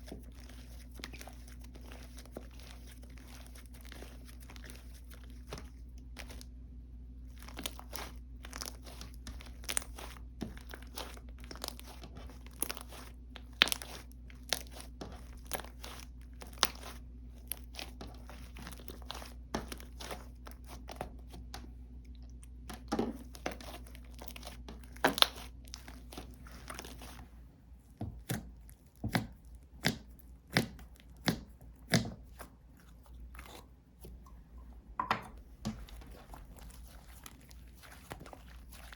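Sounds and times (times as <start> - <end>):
low steady hum: 0.0 - 38.9.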